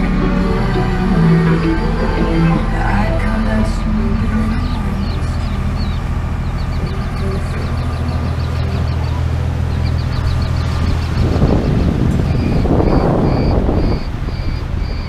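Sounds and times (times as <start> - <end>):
boat engine humming: 0.0 - 15.0
wind gusts on microphone: 5.8 - 15.0.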